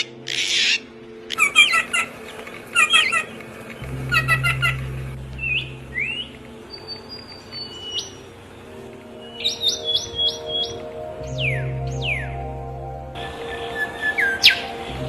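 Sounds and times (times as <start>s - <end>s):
songbirds chirping and whistling: 0.0s - 15.0s
steady low hum: 2.1s - 9.4s, 10.4s - 15.0s.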